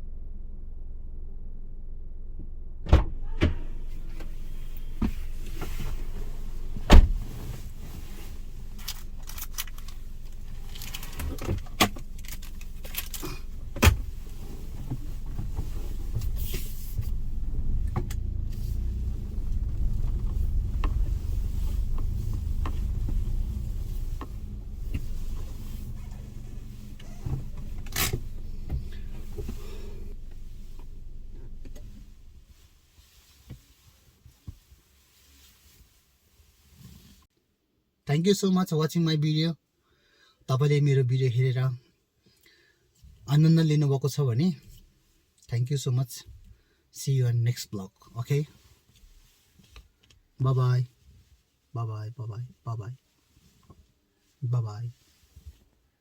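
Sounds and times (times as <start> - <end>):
car engine running: 0.0 - 32.6.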